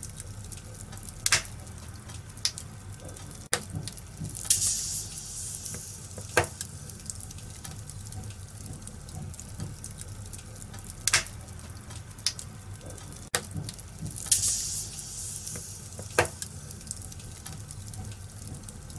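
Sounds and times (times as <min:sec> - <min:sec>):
low steady rumble: 0:00.0 - 0:18.9
wood fire crackling: 0:00.0 - 0:18.9
sharp pops from fire: 0:00.1 - 0:09.0, 0:09.6 - 0:12.5, 0:13.4 - 0:18.7
short hiss: 0:04.5 - 0:07.0, 0:14.3 - 0:16.7.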